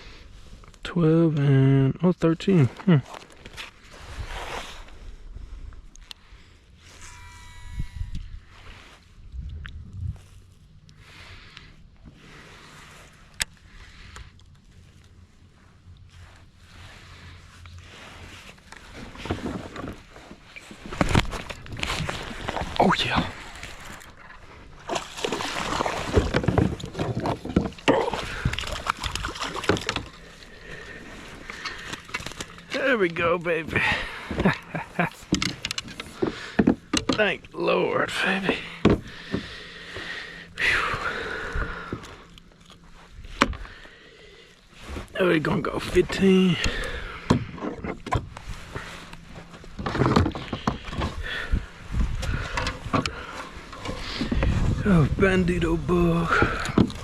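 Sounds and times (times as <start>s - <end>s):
water sloshing and splashing: 12.1s - 37.4s
knocks and clatter handling fish: 18.6s - 33.2s, 33.8s - 37.4s, 38.4s - 40.1s, 41.6s - 43.7s, 46.1s - 54.8s, 56.3s - 57.0s.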